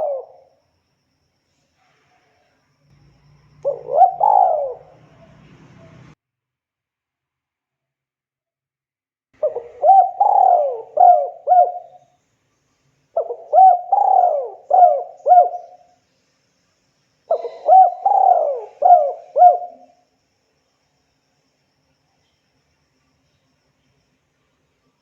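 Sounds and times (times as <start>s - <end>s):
dove cooing: 0.0s - 0.5s, 3.6s - 6.1s, 9.4s - 12.0s, 13.2s - 15.9s, 17.3s - 20.0s.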